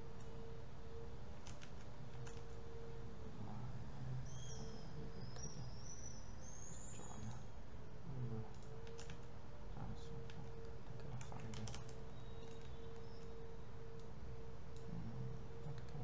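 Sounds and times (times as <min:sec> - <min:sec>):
bird chirping faintly: 0:00.0 - 0:16.0
low room hum: 0:00.0 - 0:16.0
computer mouse click: 0:01.4 - 0:02.6, 0:08.5 - 0:09.3, 0:10.1 - 0:14.1, 0:15.6 - 0:16.0.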